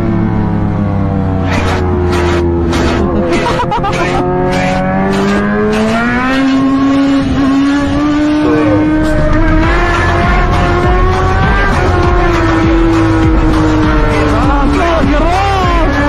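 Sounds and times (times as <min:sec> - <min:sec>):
motorcycle engine at high revs: 0:00.0 - 0:16.0
music with steady beat: 0:09.0 - 0:16.0.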